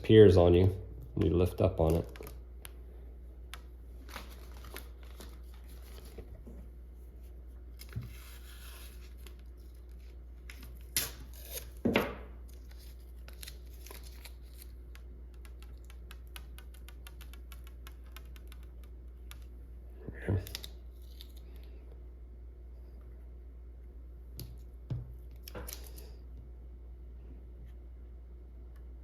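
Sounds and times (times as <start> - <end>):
adhesive tape tearing: 10.8 - 11.8.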